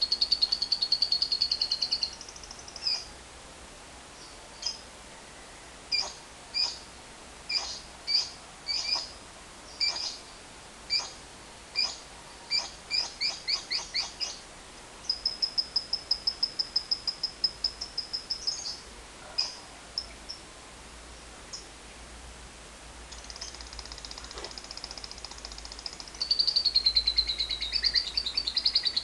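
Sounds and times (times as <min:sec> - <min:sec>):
lovebird chattering trill: 0:00.0 - 0:03.1, 0:07.5 - 0:09.2, 0:09.8 - 0:10.2, 0:10.9 - 0:11.2, 0:11.8 - 0:14.4, 0:23.1 - 0:29.0
lovebird chirping: 0:00.0 - 0:03.1, 0:05.9 - 0:06.8, 0:07.5 - 0:11.2, 0:11.8 - 0:14.4, 0:15.0 - 0:20.4, 0:23.1 - 0:29.0.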